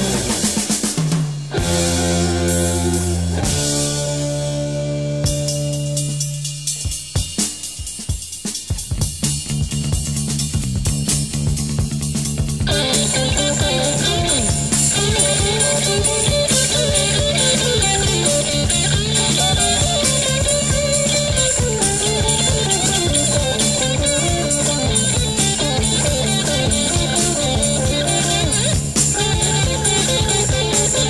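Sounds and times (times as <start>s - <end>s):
electric guitar melody: 0.0s - 0.9s, 1.5s - 6.5s, 12.6s - 31.0s
bass guitar: 0.0s - 7.3s, 9.0s - 31.0s
drum kit with cymbals: 0.0s - 31.0s.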